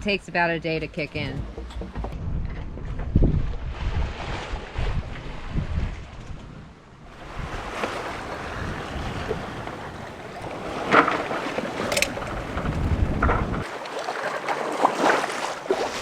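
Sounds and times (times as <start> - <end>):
wind buffeting microphone: 0.6 - 13.7
water washing past boat: 7.1 - 16.0.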